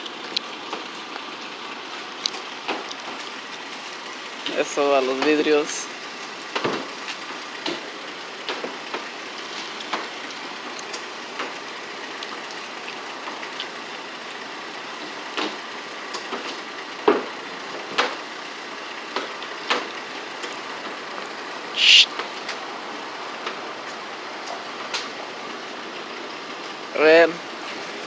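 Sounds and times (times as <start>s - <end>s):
water spraying onto car: 0.0s - 28.0s.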